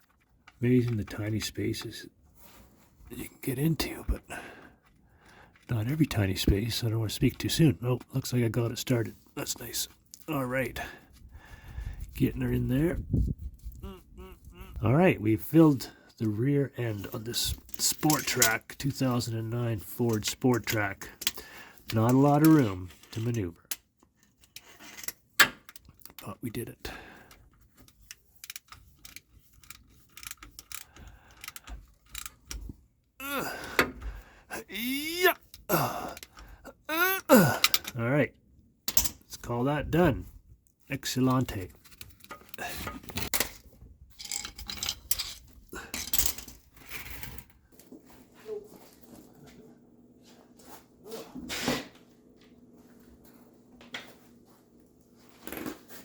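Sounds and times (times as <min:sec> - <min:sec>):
hand tools clinking: 0:17.1 - 0:18.7.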